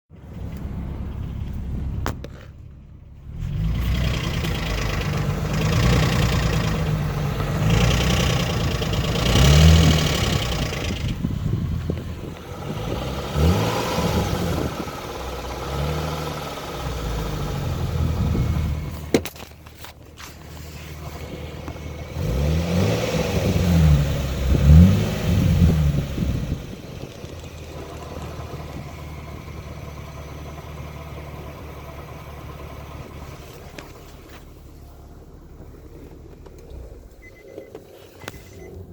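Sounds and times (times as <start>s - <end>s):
car engine revving: 0.2s - 19.2s, 20.2s - 38.9s
engine knocking: 3.9s - 12.4s.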